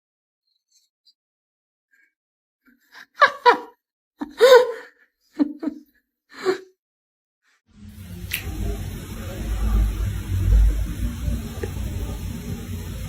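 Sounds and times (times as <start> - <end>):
person laughing: 3.0 - 6.7.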